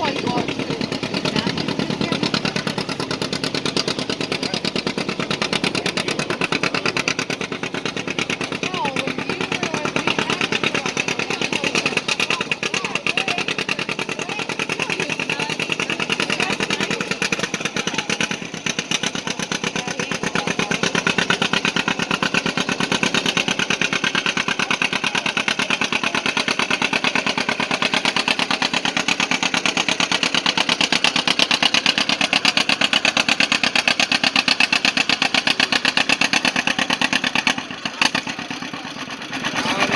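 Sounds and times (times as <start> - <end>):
tractor engine popping exhaust: 0.0 - 39.9.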